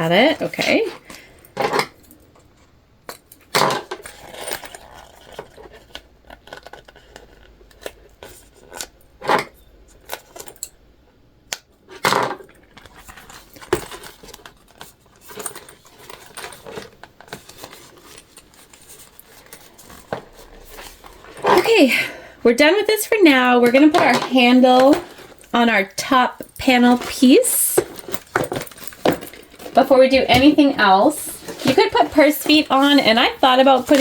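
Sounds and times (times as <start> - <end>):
sewing materials clicking and rustling: 12.0 - 22.0, 22.9 - 34.0.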